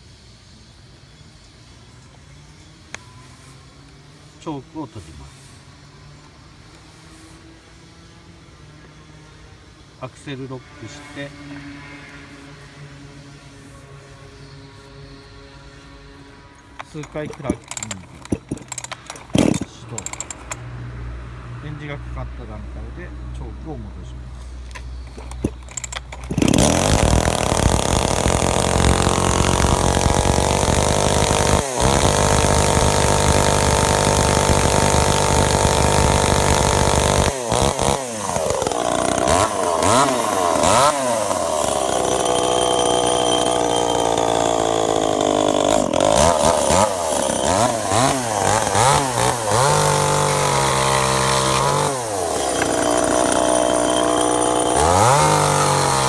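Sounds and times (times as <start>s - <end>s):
chainsaw engine revving: 16.8s - 20.6s, 24.7s - 56.0s.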